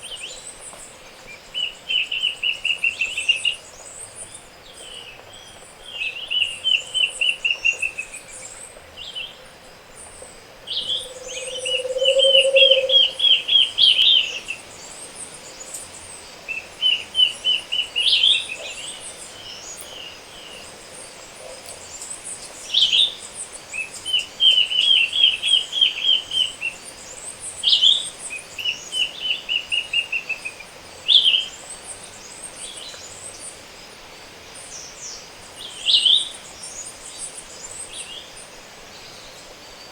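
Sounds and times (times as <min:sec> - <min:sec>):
low bird call: 0:10.7 - 0:13.6
birds chipping and calling: 0:10.8 - 0:13.5
bird repeating quick notes: 0:11.0 - 0:13.1.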